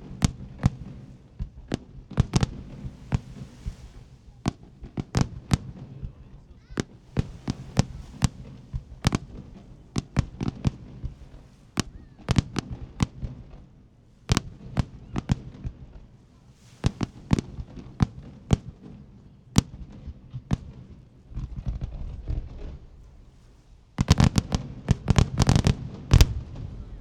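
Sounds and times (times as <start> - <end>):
rapid crackling pops: 0.0 - 13.7, 16.7 - 18.8, 24.0 - 27.0
fireworks bursting with sharp bangs: 0.0 - 27.0.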